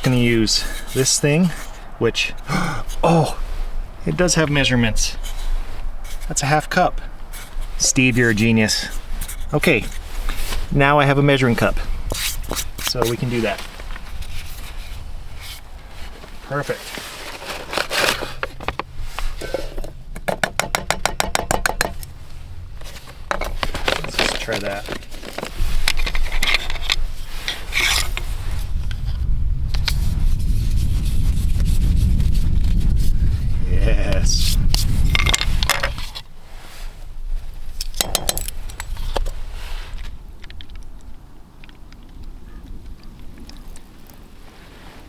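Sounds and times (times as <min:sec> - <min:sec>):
short rustles: 0:11.4 - 0:20.2, 0:21.9 - 0:28.8.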